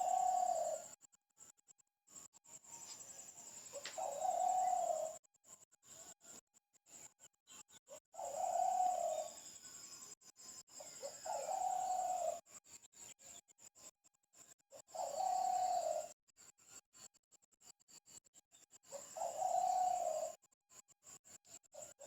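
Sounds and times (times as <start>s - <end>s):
bird hooting calls: 0.0s - 0.8s, 3.6s - 5.2s, 8.2s - 9.3s, 11.0s - 12.4s, 14.9s - 16.1s, 19.0s - 20.4s.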